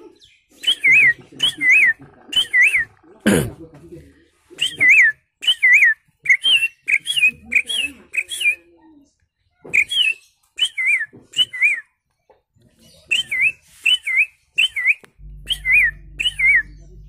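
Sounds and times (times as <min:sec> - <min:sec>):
man whistling birdsong imitation: 0:00.6 - 0:02.9, 0:04.6 - 0:08.6, 0:09.8 - 0:11.9, 0:13.1 - 0:16.8.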